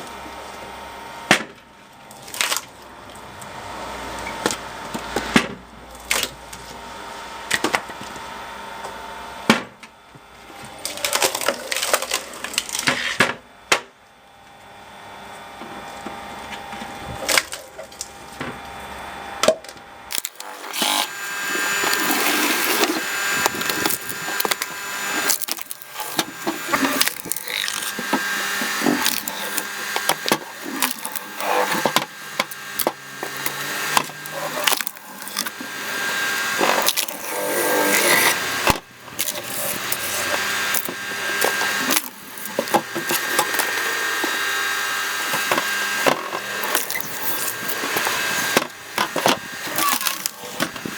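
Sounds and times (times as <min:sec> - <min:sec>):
log splitter machine hum: 0:20.1 - 0:50.9
wood cracking and splintering: 0:20.1 - 0:50.9.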